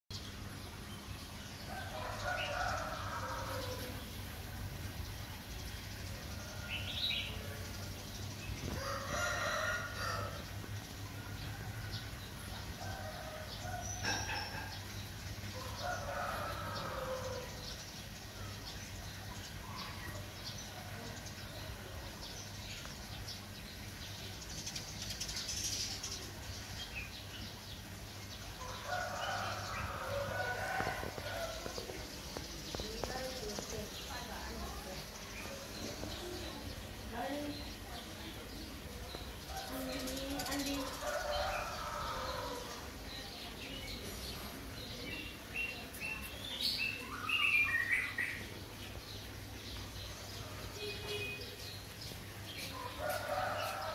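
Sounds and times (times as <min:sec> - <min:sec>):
small birds chirping: 0:12.4 - 0:53.9.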